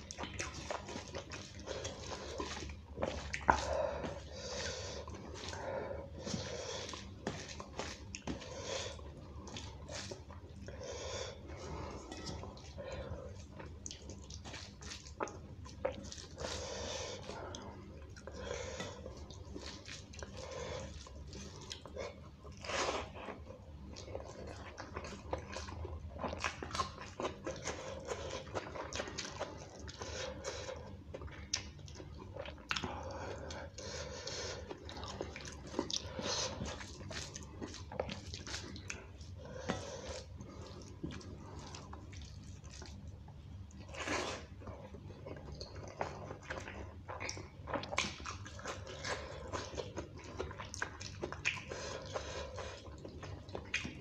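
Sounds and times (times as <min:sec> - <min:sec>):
wet chewing and lip-smacking: 0:00.0 - 0:10.8, 0:11.4 - 0:54.0
fingers squishing wet rice: 0:45.5 - 0:54.0.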